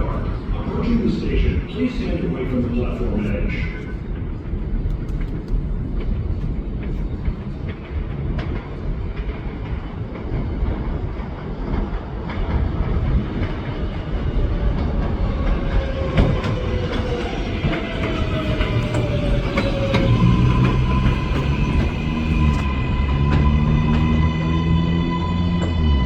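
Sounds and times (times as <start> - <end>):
subway train rumbling: 0.0 - 26.0.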